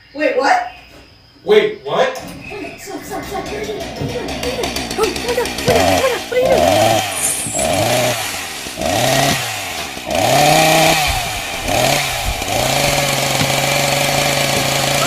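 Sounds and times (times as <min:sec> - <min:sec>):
chainsaw revving: 0:02.7 - 0:15.0.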